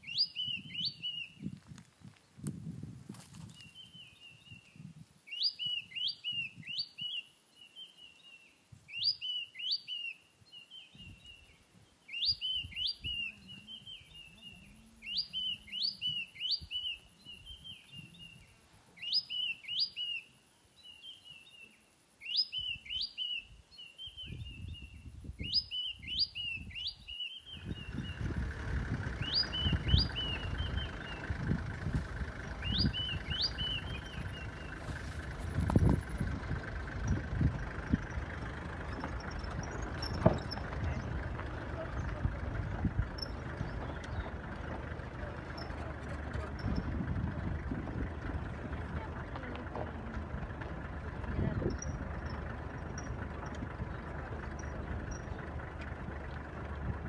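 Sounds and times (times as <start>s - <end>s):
bird singing chirps and trill: 0.0s - 1.5s, 3.5s - 49.0s, 50.2s - 56.6s
low rumble: 27.5s - 57.0s.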